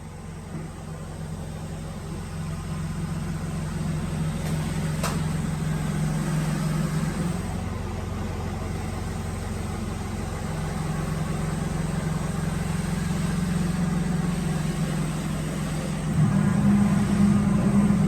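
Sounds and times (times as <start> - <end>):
drilling machine motor hum: 10.5 - 18.0.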